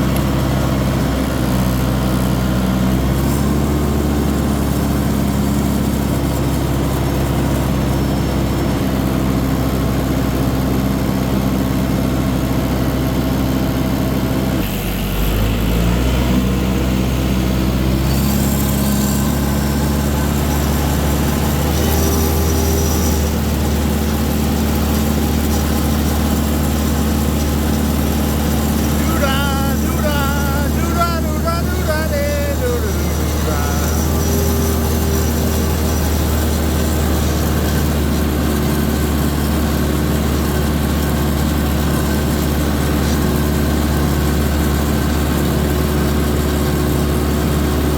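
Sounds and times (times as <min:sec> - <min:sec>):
tractor engine running: 0:11.4 - 0:47.9.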